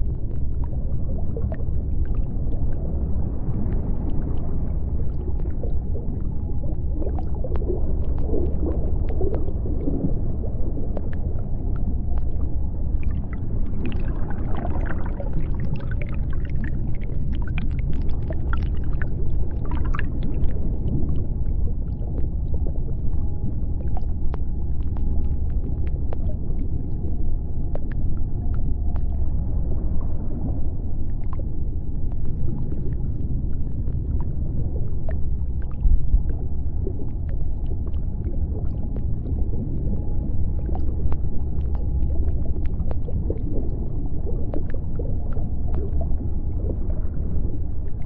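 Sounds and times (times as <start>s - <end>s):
deep underwater rumble: 0.0s - 48.0s
crackling clicks: 6.9s - 29.2s.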